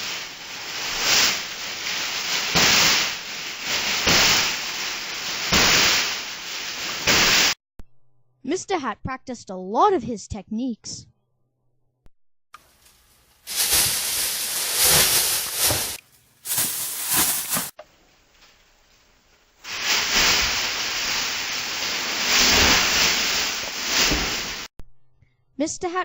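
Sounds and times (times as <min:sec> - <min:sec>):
loud rushing hiss: 0:00.0 - 0:07.6, 0:13.5 - 0:17.8.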